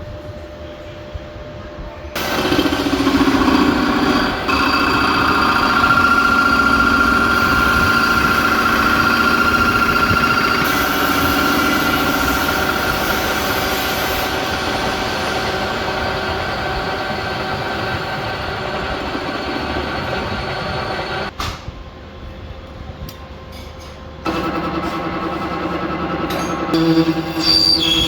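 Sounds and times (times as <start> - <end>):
tractor diesel engine running: 2.2 - 21.3.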